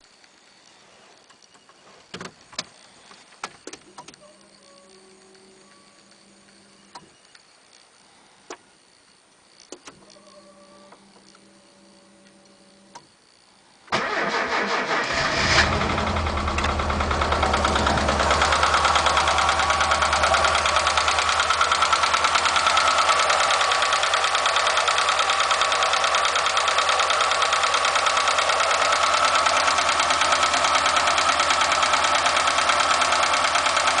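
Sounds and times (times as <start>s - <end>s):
car engine cranking and starting: 13.9s - 34.0s
engine idling with valve tapping: 14.0s - 34.0s.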